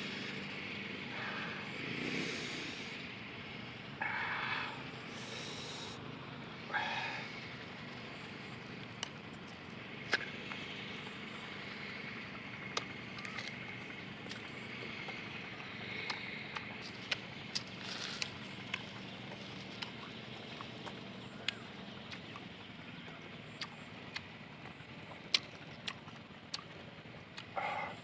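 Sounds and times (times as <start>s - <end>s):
faint background hum: 0.0s - 28.0s
crunchy chewing: 11.7s - 28.0s
mouth clicks: 19.8s - 24.3s, 25.1s - 28.0s.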